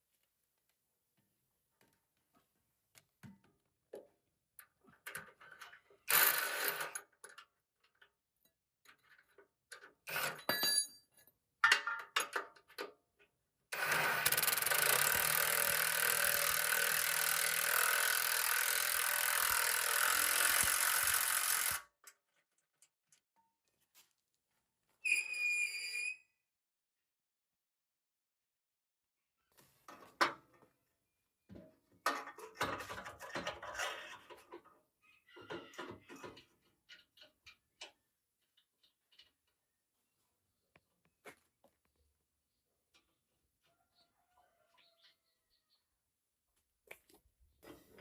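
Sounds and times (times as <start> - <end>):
metal parts clanking: 8.9 - 11.0
tool running with steady hiss: 13.8 - 21.8.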